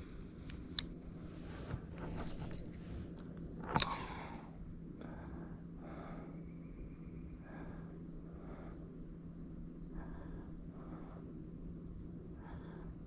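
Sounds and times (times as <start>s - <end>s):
insect chirring: 0.0s - 13.0s
sharp click: 1.6s - 4.2s.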